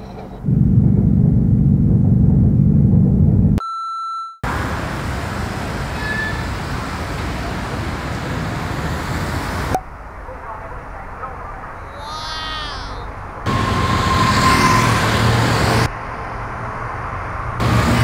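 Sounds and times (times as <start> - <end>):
low vehicle rumble: 0.0 - 3.6
hissing traffic noise: 4.5 - 11.9, 13.0 - 18.0.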